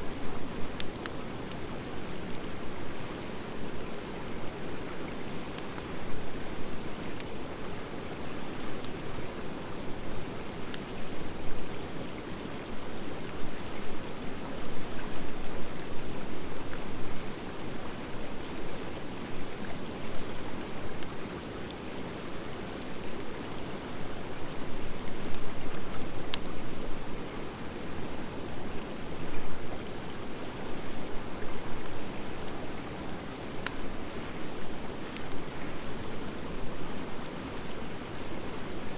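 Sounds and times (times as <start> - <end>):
sharp pops and crackles: 0.7 - 2.5.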